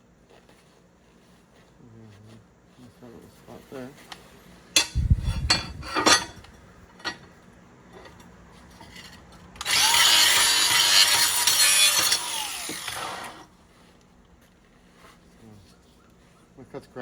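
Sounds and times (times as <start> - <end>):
grinder grinding metal: 9.6 - 13.4.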